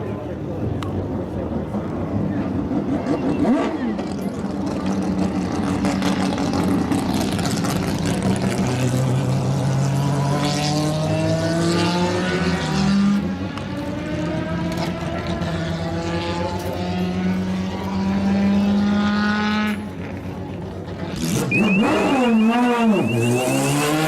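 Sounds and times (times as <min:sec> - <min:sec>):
racing engines revving: 0:00.1 - 0:24.0
racing car sweeping past: 0:05.4 - 0:19.8, 0:21.0 - 0:24.0.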